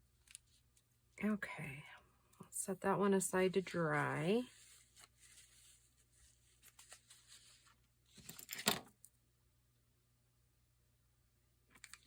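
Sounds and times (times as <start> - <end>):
paper scraping: 3.8 - 7.8
paper rustling: 3.9 - 8.7.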